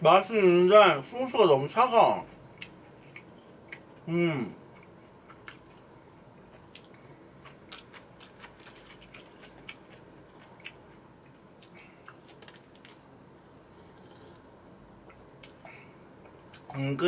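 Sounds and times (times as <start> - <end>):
person chewing food: 2.4 - 4.1, 4.7 - 13.1.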